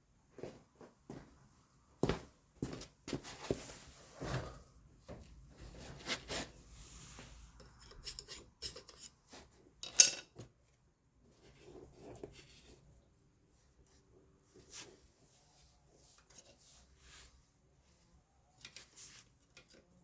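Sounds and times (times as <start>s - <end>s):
tools scraping and rubbing: 5.9s - 10.2s.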